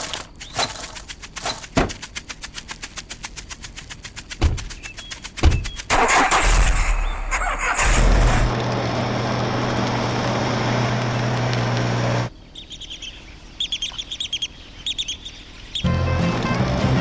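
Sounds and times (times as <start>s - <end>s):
bird chirping: 0.0s - 2.3s, 4.2s - 7.5s, 12.3s - 15.9s.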